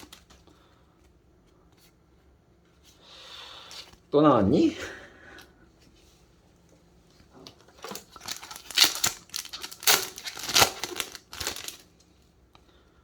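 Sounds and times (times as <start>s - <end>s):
foil wrapper crinkling and tearing: 7.7s - 11.9s.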